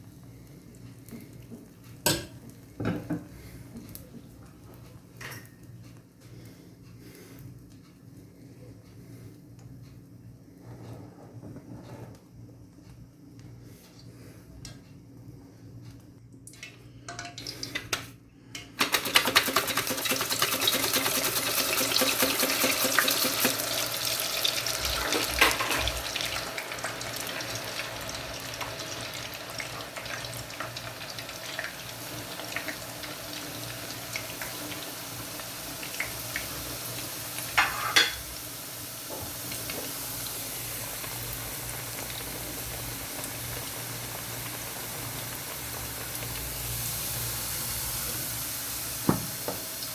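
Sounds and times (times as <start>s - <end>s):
food sizzling in hot oil: 19.0s - 49.9s.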